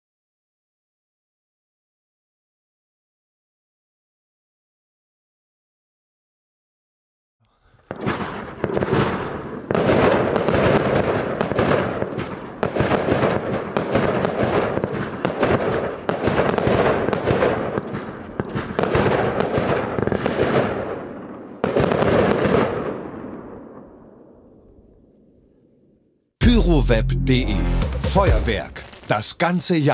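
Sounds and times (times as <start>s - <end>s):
fireworks popping and banging: 7.8s - 21.0s, 21.6s - 23.0s, 28.0s - 29.5s.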